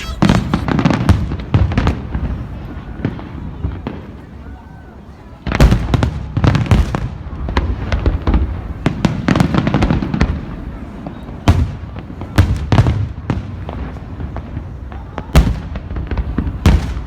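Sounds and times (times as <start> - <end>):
aerial fireworks bursting: 0.0 - 1.4
heavy firework booms: 0.0 - 2.3.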